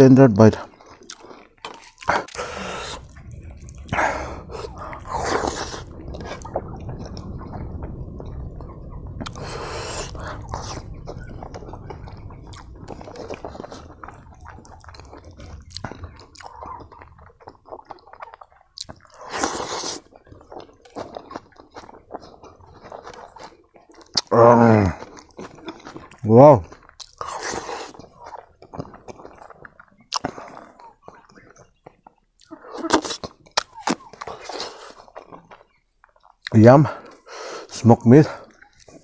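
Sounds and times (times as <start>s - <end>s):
person chewing wetly: 0.6s - 37.3s
low steady rumble: 2.2s - 23.4s.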